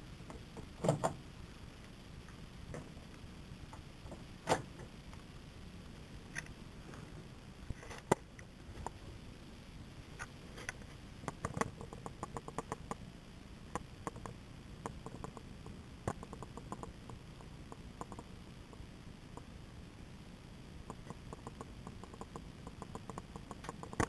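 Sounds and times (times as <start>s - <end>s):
light ticks and clicks: 20.9s - 24.0s.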